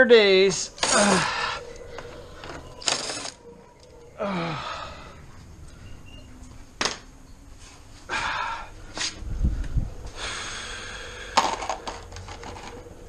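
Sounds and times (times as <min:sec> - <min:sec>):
man groaning: 0:00.8 - 0:01.7, 0:04.2 - 0:05.2
man sighing: 0:00.8 - 0:01.7, 0:04.2 - 0:05.2, 0:08.1 - 0:08.8.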